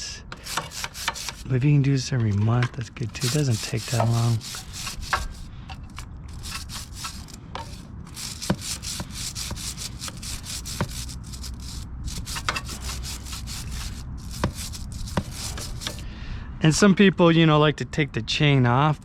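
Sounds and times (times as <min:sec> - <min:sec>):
brush scrubbing a chain: 0:00.3 - 0:16.0.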